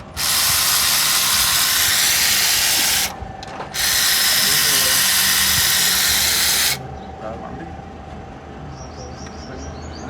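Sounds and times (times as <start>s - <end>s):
compressed air hissing: 0.0s - 3.2s, 3.8s - 6.8s.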